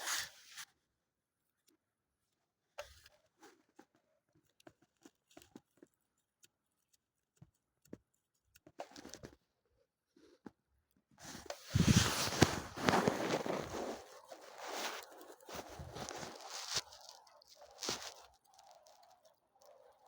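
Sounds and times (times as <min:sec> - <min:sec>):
dry leaves rustling and crunching: 0:11.3 - 0:18.7.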